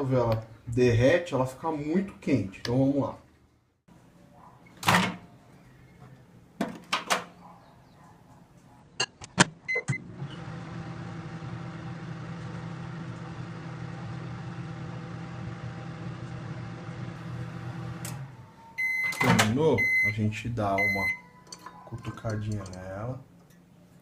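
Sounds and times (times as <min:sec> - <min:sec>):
microwave oven humming: 0:09.9 - 0:21.4
keypad beeps: 0:18.8 - 0:20.1, 0:20.8 - 0:21.2.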